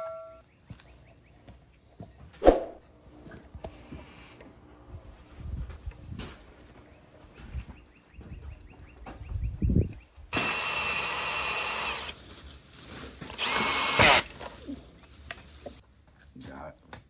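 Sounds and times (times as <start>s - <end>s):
handheld power tool on steel bolts: 10.3s - 12.2s, 13.3s - 14.5s.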